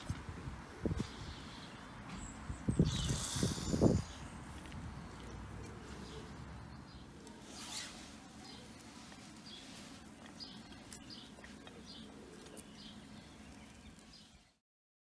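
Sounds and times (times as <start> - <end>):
small bird chirping: 2.3 - 4.3.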